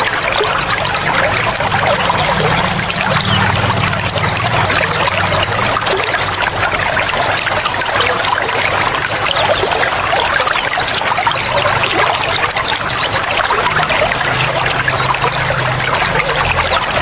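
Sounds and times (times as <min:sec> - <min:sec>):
small songbirds chirping: 0:00.0 - 0:17.0
water running and splashing: 0:00.0 - 0:17.0
low hum: 0:00.6 - 0:07.0.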